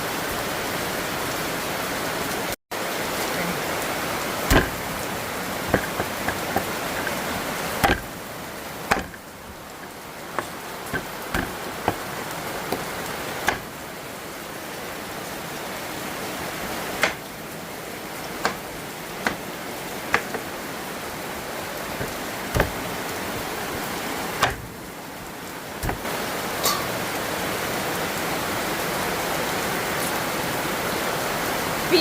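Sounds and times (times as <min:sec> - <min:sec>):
steady rain: 0:00.0 - 0:32.0
sharp taps: 0:04.5 - 0:05.0, 0:05.7 - 0:07.2, 0:07.8 - 0:08.2, 0:08.9 - 0:12.1, 0:12.7 - 0:13.7, 0:22.0 - 0:22.9.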